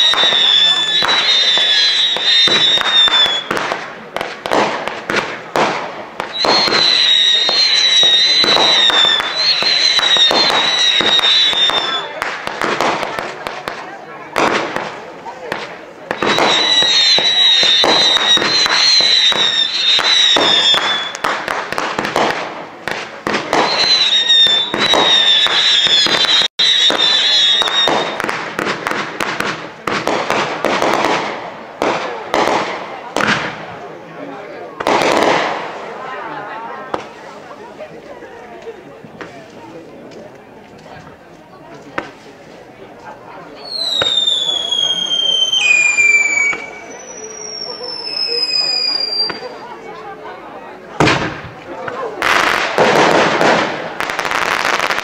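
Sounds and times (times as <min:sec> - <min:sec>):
high firework whistle: 0:00.0 - 0:03.7, 0:06.2 - 0:12.2, 0:16.1 - 0:22.4, 0:23.3 - 0:28.4, 0:43.6 - 0:49.7
fireworks bangs and crackles: 0:00.0 - 0:55.0.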